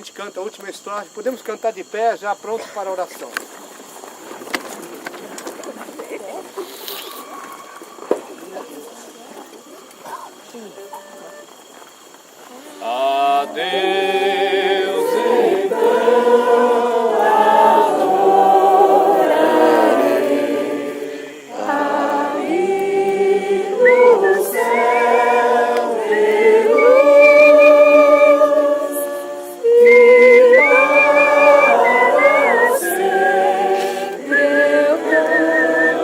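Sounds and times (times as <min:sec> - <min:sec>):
group singing a hymn: 0:12.6 - 0:36.0.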